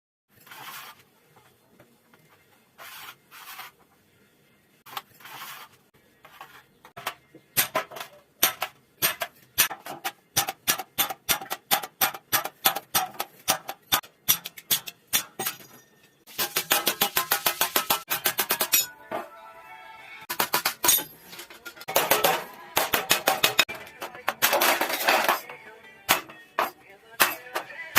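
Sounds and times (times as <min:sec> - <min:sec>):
scraping on sheet metal: 0:00.4 - 0:01.1, 0:04.9 - 0:06.8, 0:16.3 - 0:18.8
hammer striking metal: 0:07.6 - 0:19.0, 0:21.9 - 0:25.4.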